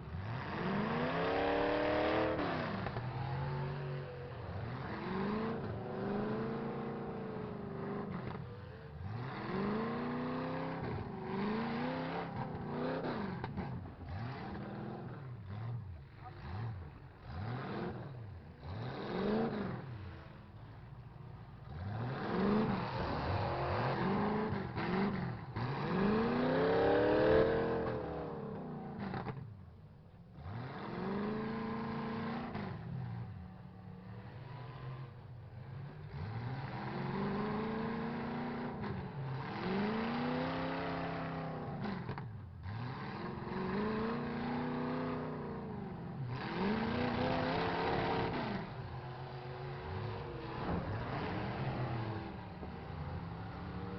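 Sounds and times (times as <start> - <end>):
truck engines revving: 0.0 - 53.9.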